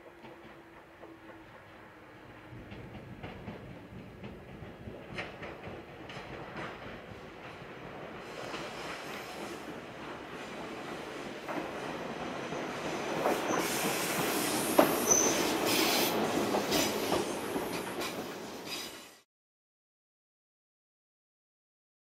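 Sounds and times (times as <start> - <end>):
electric train arriving: 0.0 - 19.2
high wheel squeal: 14.4 - 16.1.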